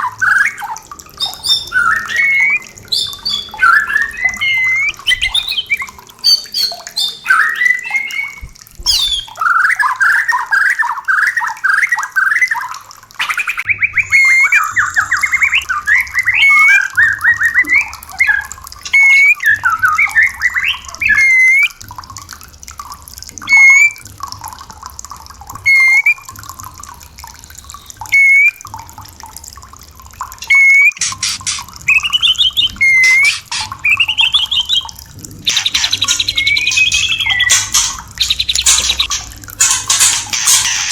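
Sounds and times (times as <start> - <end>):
bird calling and singing: 0.0 - 21.8, 23.4 - 24.0, 27.6 - 28.6, 30.4 - 40.9.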